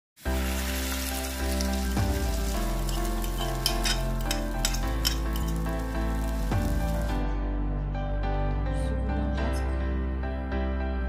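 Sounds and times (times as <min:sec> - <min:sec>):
food sizzling in pan: 0:00.2 - 0:07.2
background music: 0:00.2 - 0:11.0
fork clinking on plate: 0:03.6 - 0:05.6.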